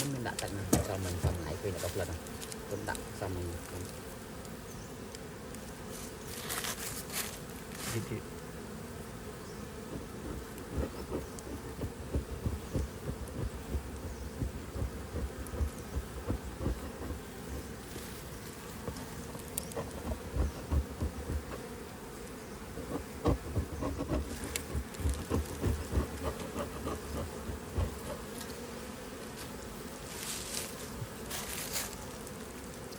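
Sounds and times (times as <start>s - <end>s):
honeybees buzzing: 0.0s - 32.9s
low bumps: 9.9s - 17.8s.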